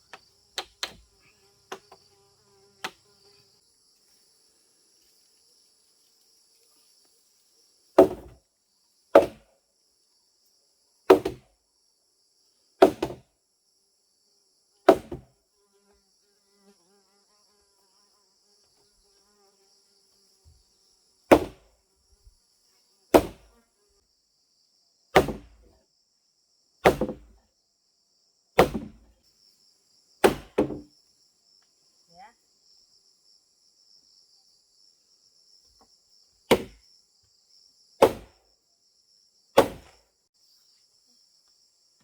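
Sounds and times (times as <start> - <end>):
insects buzzing: 0.0 - 42.0
tool striking wood: 0.1 - 1.1, 8.0 - 8.4, 9.2 - 9.5, 11.1 - 11.4, 12.8 - 13.2, 14.9 - 15.3, 21.3 - 21.6, 23.2 - 23.5, 25.2 - 25.7, 26.8 - 27.4, 28.6 - 29.1, 30.2 - 30.9, 36.5 - 36.8, 38.0 - 38.4, 39.6 - 40.0.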